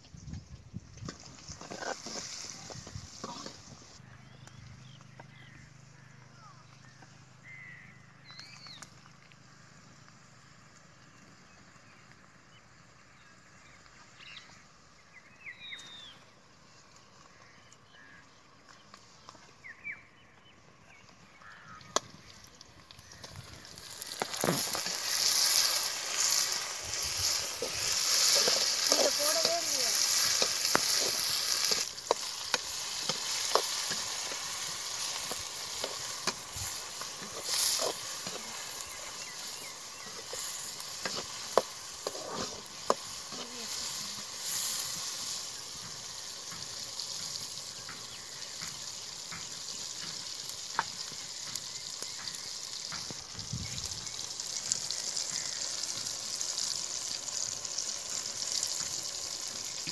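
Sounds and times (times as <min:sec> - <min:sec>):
onions and tomatoes sizzling in oil: 0:00.0 - 0:06.2, 0:06.8 - 0:59.9
metal spoon scraping a pan: 0:01.5 - 0:03.6, 0:24.2 - 0:45.3.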